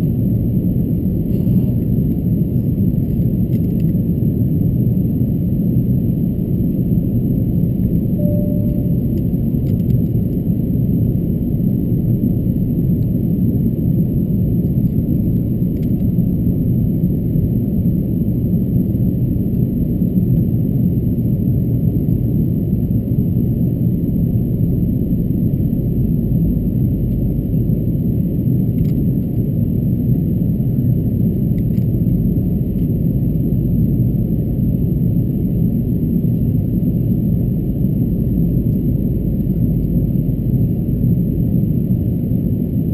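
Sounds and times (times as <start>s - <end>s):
airliner cabin rumble: 0.0s - 42.9s.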